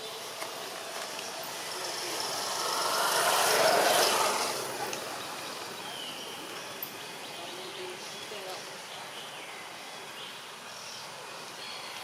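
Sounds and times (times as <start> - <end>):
vehicle passing by: 0.0 - 6.8.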